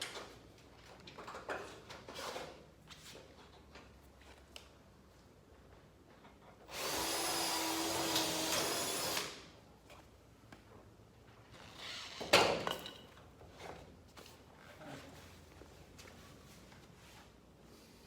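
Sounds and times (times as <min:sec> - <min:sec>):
power drill running: 0:06.7 - 0:09.4.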